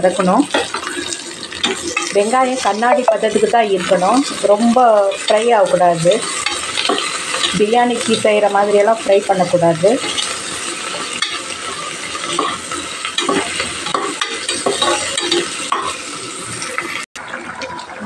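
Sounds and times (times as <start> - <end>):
onions sizzling in ghee: 0.0 - 17.1
steel spoon scraping a pot: 0.2 - 8.2, 10.0 - 16.3.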